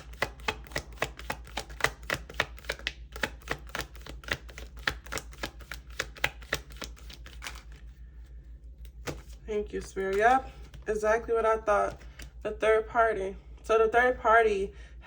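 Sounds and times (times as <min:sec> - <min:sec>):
cards being shuffled: 0:00.0 - 0:11.0, 0:11.7 - 0:12.4.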